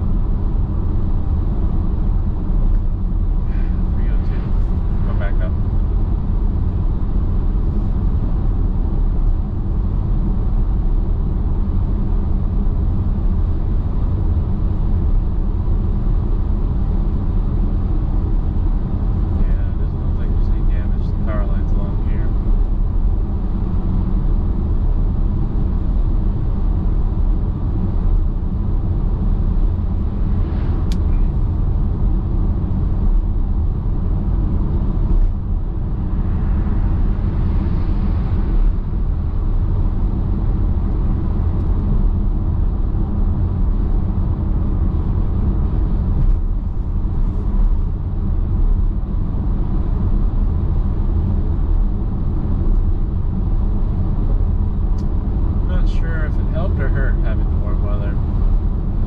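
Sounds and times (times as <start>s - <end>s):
car engine drone: 0.0s - 59.0s
tyre and road noise: 27.4s - 50.4s.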